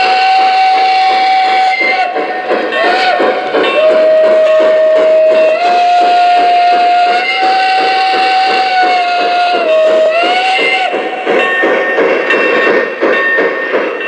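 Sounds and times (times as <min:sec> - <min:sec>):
steam whistle: 0:00.0 - 0:11.0
rhythmic chuffing: 0:00.0 - 0:14.0.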